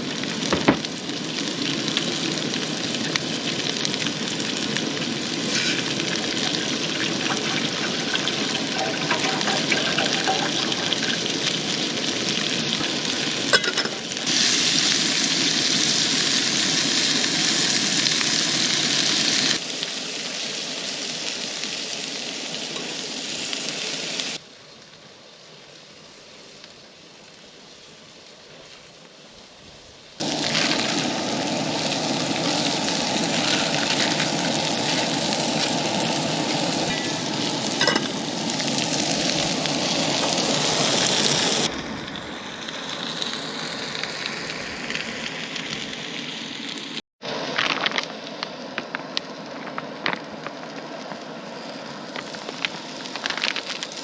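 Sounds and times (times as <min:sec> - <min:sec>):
meat and vegetables sizzling: 0:00.0 - 0:54.0.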